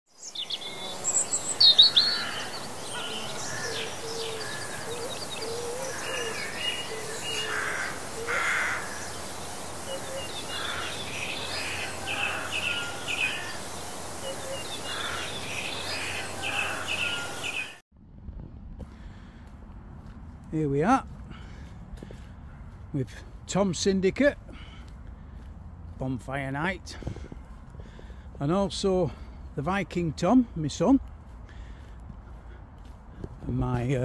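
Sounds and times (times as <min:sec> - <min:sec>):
birds chirping and trilling: 0:00.1 - 0:17.8
steady background hiss: 0:00.2 - 0:17.8.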